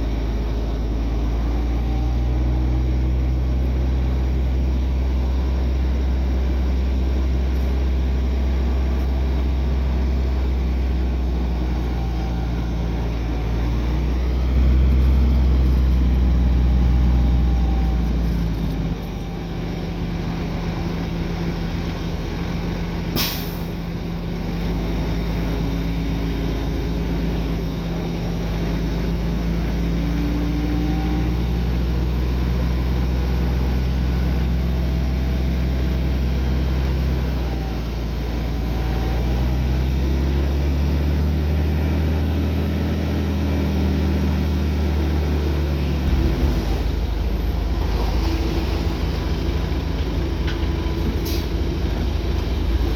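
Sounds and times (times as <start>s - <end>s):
diesel machinery running: 0.0s - 52.9s
short sharp hiss: 23.2s - 23.7s.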